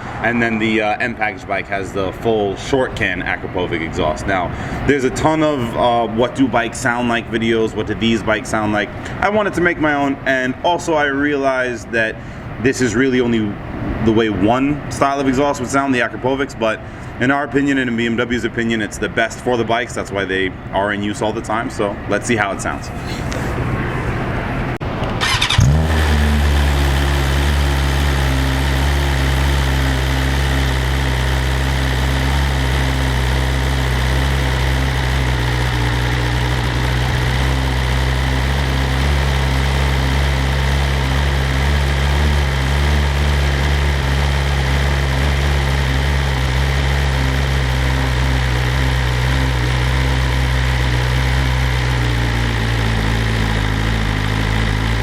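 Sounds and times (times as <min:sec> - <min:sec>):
motorcycle engine idling: 0:23.3 - 0:55.0
starter motor cranking: 0:25.0 - 0:45.4.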